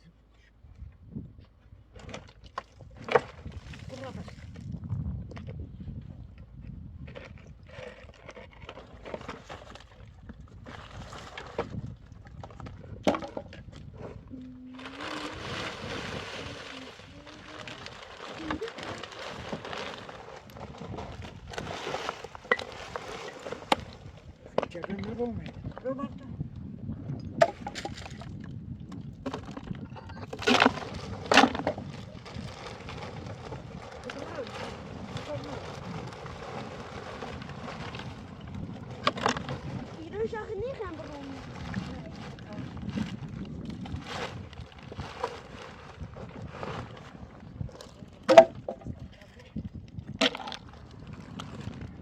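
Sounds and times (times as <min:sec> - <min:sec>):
wood cracking and snapping: 0:30.3 - 0:33.4.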